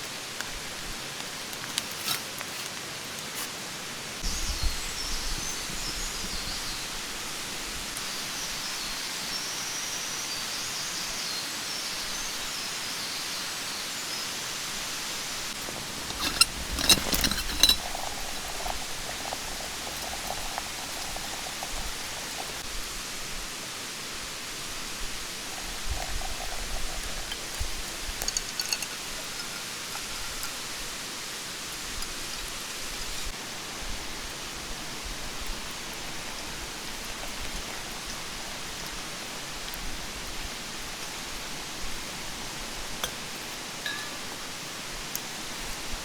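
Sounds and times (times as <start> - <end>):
mountain stream rushing: 15.4 - 22.6.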